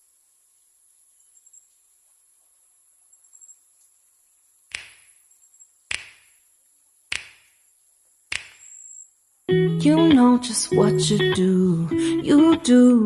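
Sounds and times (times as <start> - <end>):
faint high-pitched chirping: 0.0 - 4.6, 8.6 - 9.2
sharp knocks: 5.9 - 6.3, 7.1 - 7.5, 8.3 - 8.6.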